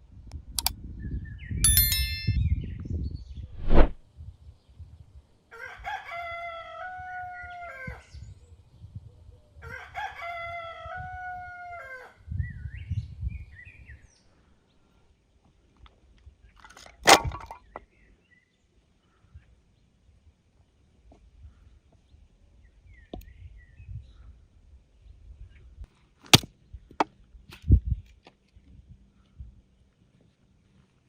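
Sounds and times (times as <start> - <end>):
rooster crowing: 5.5 - 8.0, 9.6 - 12.2.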